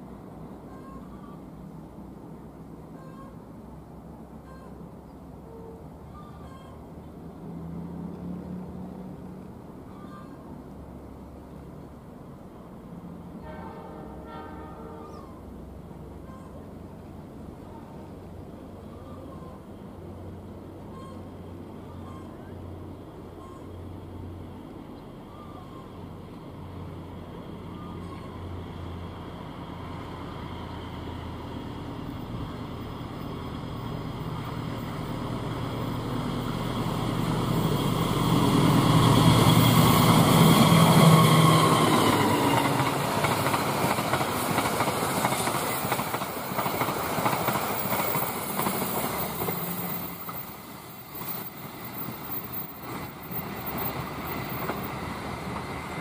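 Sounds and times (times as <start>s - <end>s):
diesel locomotive engine passing: 0.0s - 56.0s
carriages clattering on rails: 31.0s - 56.0s.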